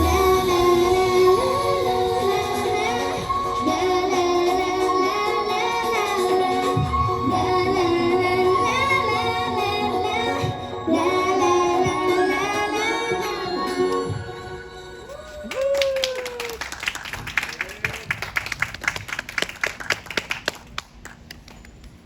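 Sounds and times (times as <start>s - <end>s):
pop backing track: 0.0s - 15.1s
woman singing: 0.0s - 15.1s.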